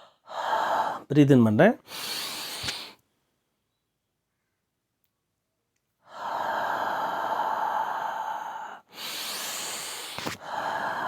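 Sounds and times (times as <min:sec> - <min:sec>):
forceful breathy exhalation: 0:01.8 - 0:03.0, 0:06.1 - 0:11.0.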